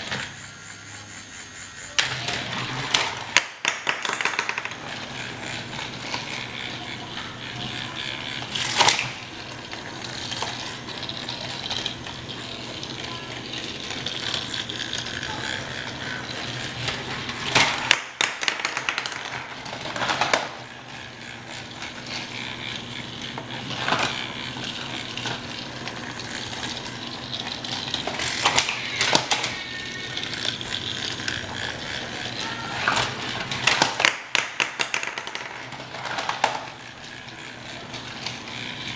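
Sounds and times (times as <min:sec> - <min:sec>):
toy train motor whirring: 0:00.0 - 0:38.9.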